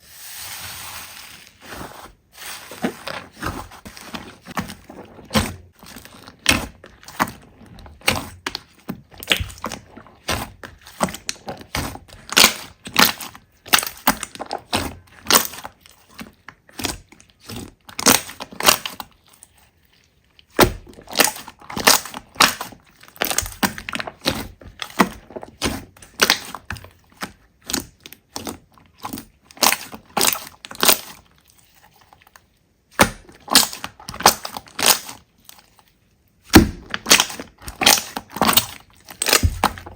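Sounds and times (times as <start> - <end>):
slime crackling and popping: 3.1 - 15.8, 16.6 - 19.1, 20.4 - 26.7, 33.0 - 35.2, 36.4 - 39.9.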